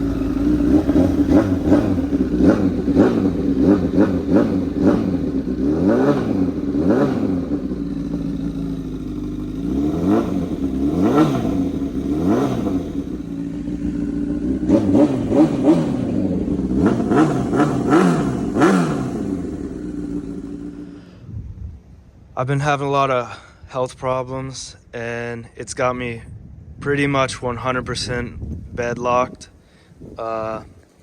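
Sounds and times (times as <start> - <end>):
motorcycle engine revving: 0.0 - 21.2.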